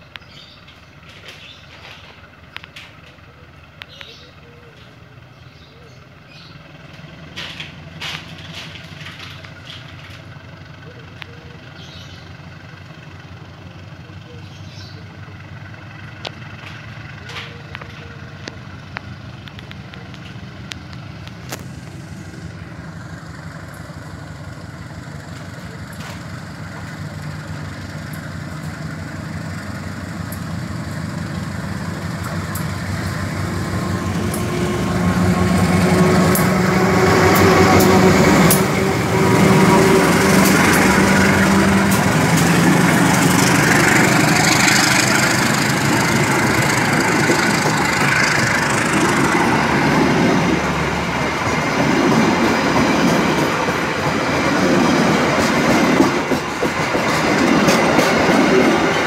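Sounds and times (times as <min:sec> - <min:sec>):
locomotive engine running: 0:00.0 - 0:59.0
passenger coaches rolling by: 0:00.0 - 0:59.0
train wheels clicking: 0:06.8 - 0:10.5, 0:16.1 - 0:59.0.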